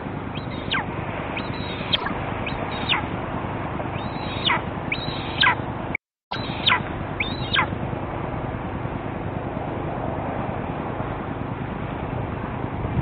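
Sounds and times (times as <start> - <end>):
bird whistles sliding downward: 0.3 - 3.1, 3.9 - 5.6, 6.3 - 7.7.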